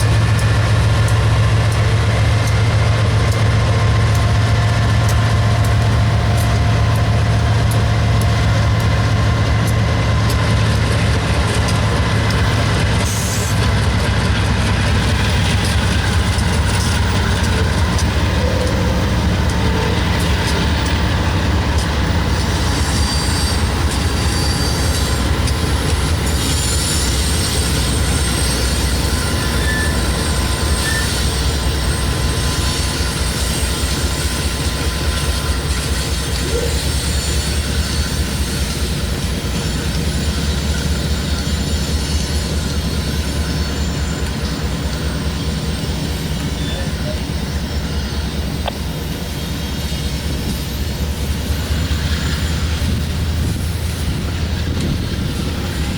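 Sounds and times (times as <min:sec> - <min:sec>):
wheels clicking over rail joints: 0:00.0 - 0:47.6, 0:48.4 - 0:55.9
freight train cars rumbling: 0:00.0 - 0:55.9
faint thin wheel squeal: 0:22.3 - 0:53.0.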